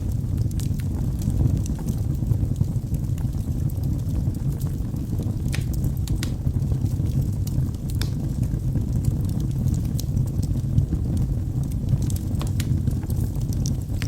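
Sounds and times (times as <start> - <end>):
crackles and pops of logs: 0.0 - 14.0
wood fire burning: 0.0 - 14.0.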